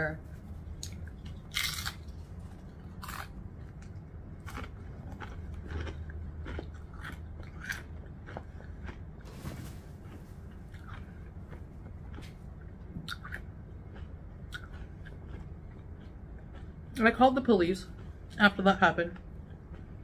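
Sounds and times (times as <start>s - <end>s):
person chewing crunchy chips: 0.7s - 9.3s, 10.0s - 17.2s.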